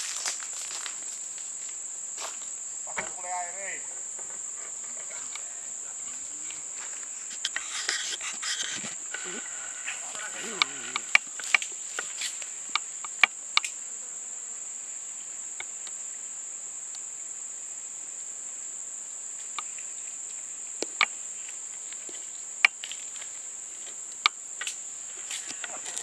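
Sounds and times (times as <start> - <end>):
shrill insect drone: 0.0 - 26.0
sharp clicks: 12.7 - 13.8.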